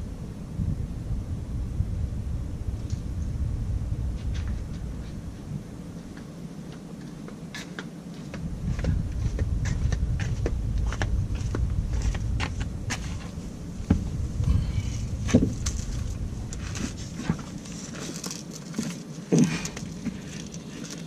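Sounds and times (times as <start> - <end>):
low rumble: 0.0 - 6.7, 8.4 - 18.0.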